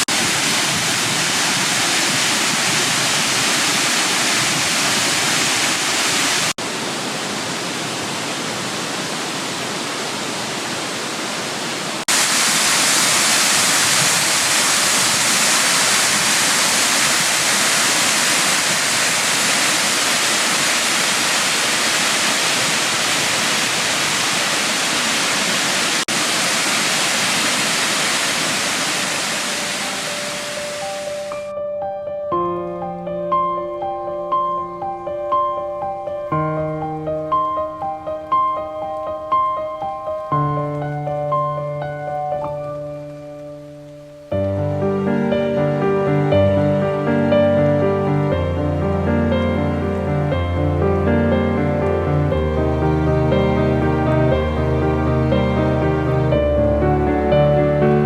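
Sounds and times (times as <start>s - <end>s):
waterfall rushing: 0.0s - 31.5s, 36.0s - 58.0s.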